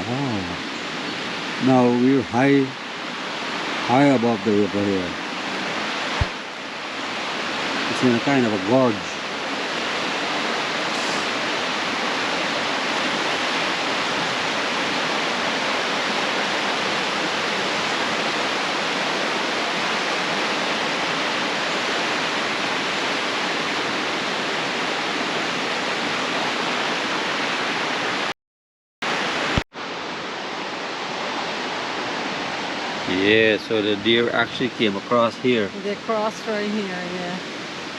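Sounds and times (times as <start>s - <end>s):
river rushing: 0.0s - 28.3s, 29.1s - 37.9s.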